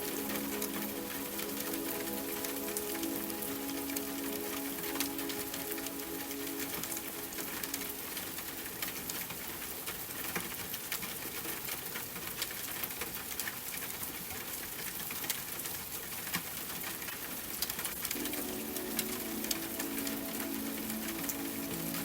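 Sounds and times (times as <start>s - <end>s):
soft music notes: 0.0s - 9.4s, 18.1s - 22.0s
rain pattering: 0.0s - 22.0s.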